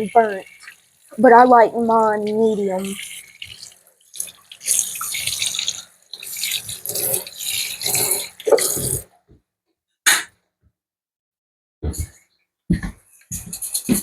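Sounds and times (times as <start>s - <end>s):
water running from sink tap: 0.0s - 9.0s.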